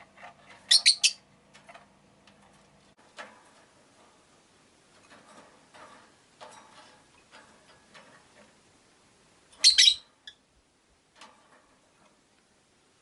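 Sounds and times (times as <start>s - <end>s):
lovebird shrill chirps: 0.7s - 1.2s, 9.6s - 10.4s
faint clicking and rustling: 1.3s - 13.0s.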